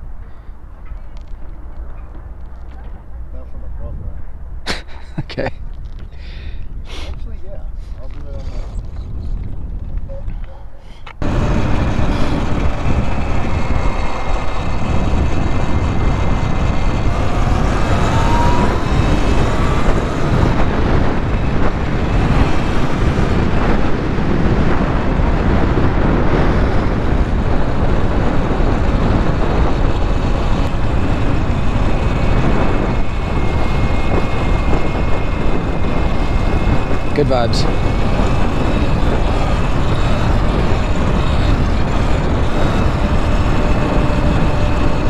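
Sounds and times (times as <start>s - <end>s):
wind rushing over microphone: 0.0s - 45.0s
bicycle tyre noise: 11.1s - 45.0s
electric motor whine: 11.2s - 45.0s.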